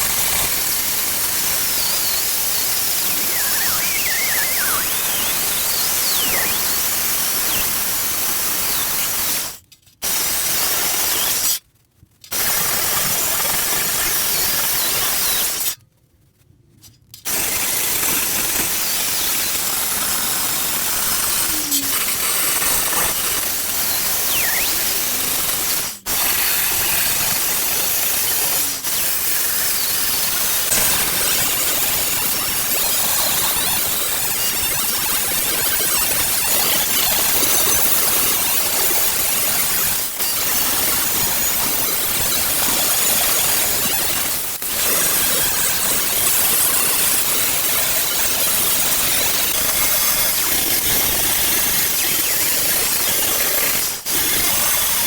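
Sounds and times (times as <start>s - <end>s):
welder hissing and crackling: 0.0s - 11.6s, 12.3s - 15.8s, 17.2s - 55.0s.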